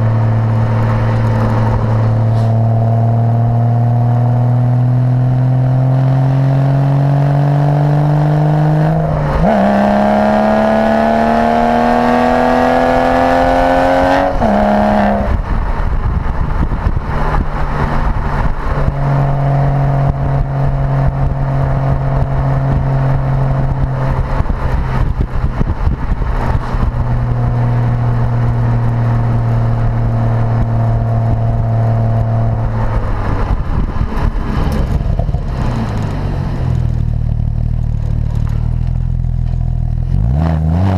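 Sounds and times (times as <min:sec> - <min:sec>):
car engine accelerating: 0:00.0 - 0:40.9
road rumble: 0:00.0 - 0:40.9.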